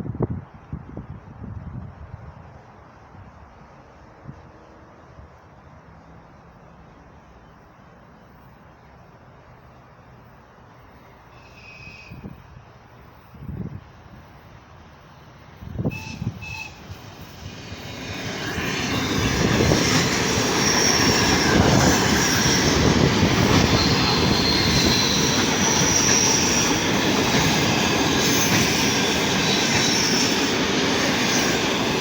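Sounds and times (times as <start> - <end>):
electric train rumbling past: 0.0 - 32.0
high wheel squeal: 17.6 - 32.0.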